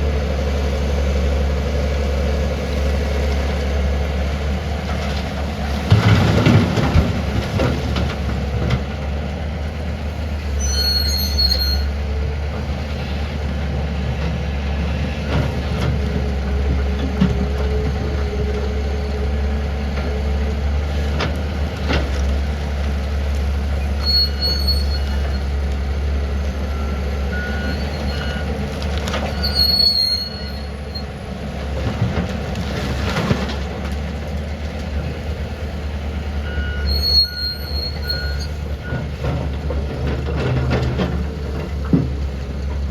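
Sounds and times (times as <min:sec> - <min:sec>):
excavator diesel engine running: 0:00.0 - 0:42.9
high metallic squeals: 0:10.5 - 0:12.0, 0:23.9 - 0:25.6, 0:29.3 - 0:31.1, 0:36.6 - 0:39.0.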